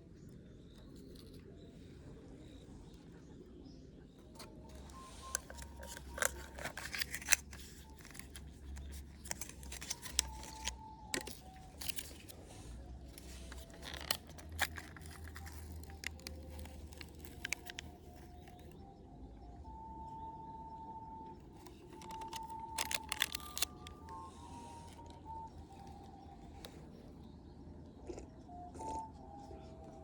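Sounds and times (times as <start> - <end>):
small hard objects clinking: 4.7 - 12.4, 13.1 - 18.6.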